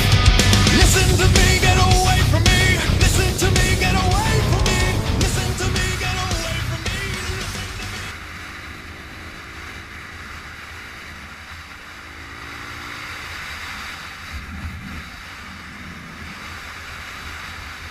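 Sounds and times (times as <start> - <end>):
faint engine: 0.0 - 17.9
wind rush over microphone: 0.6 - 8.0.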